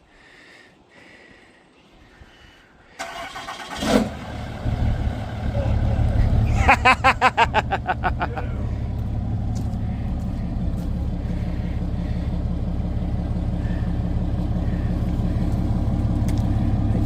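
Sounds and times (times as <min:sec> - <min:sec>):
diesel engine idling: 0:03.0 - 0:17.0.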